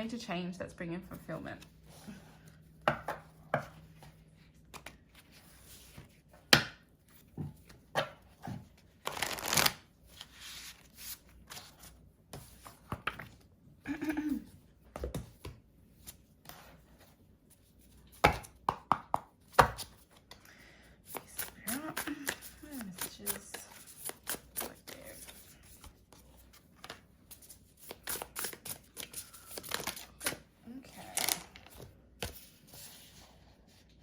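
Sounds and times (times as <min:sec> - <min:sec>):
cards being shuffled: 0:04.0 - 0:06.5, 0:07.2 - 0:13.4, 0:19.5 - 0:33.2.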